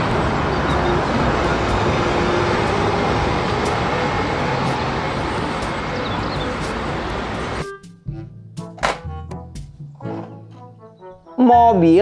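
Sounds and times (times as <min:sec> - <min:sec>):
bus engine and road noise: 0:00.0 - 0:07.7.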